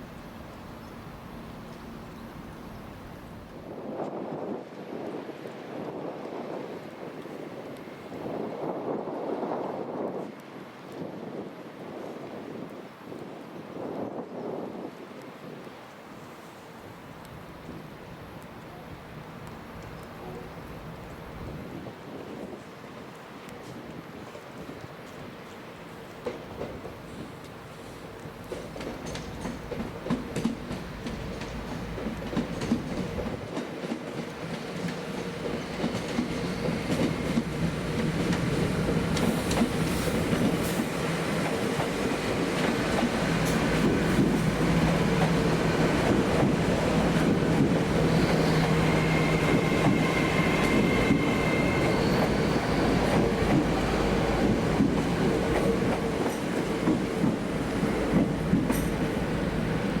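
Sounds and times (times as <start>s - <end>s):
train wheels clicking on rails: 23.5s - 60.0s.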